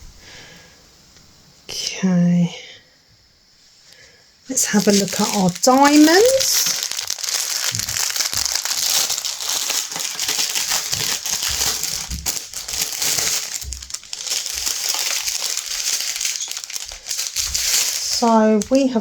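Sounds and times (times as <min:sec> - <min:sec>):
plastic bags crinkling: 0:04.5 - 0:19.0.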